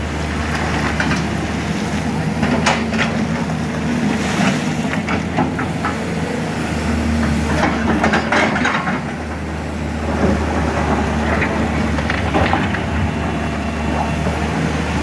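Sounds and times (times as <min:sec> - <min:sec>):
excavator diesel engine running: 0:00.0 - 0:15.0
digging knocks and clatter: 0:07.2 - 0:15.0.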